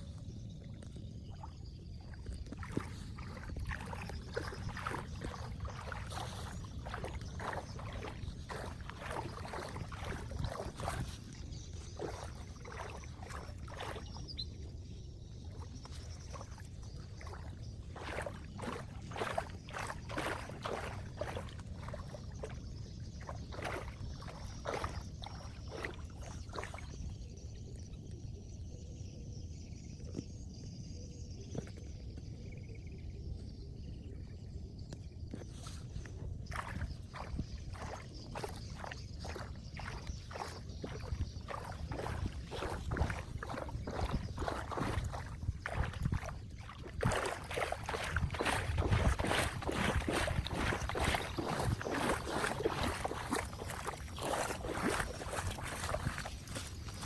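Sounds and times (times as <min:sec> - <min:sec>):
water splashing and sloshing: 0:00.0 - 0:28.8, 0:34.3 - 0:57.0.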